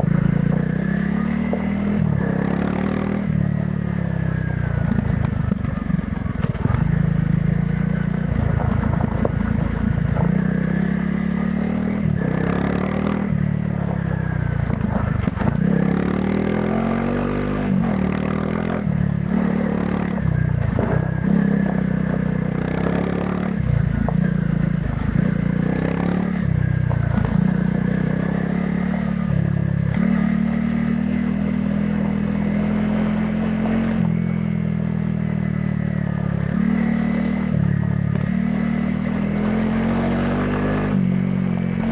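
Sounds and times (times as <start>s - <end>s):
motorcycle engine revving: 0.0s - 41.9s
motorcycle knocks and rattles: 4.7s - 10.6s, 13.7s - 16.1s, 17.7s - 28.8s.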